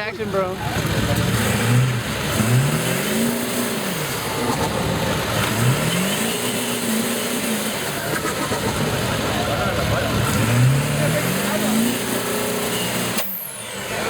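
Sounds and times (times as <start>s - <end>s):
diesel engine revving: 0.0s - 14.0s.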